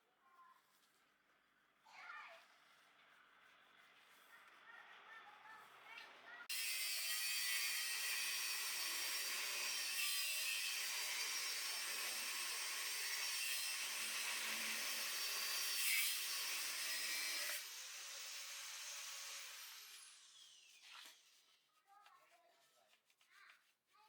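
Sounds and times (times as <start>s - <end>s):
power tool running: 6.5s - 20.8s.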